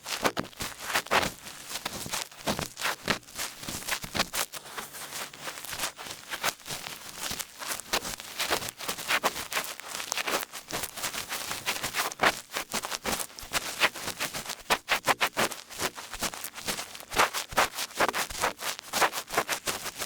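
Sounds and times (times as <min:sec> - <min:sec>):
ear pick scratching: 0:03.9 - 0:10.4.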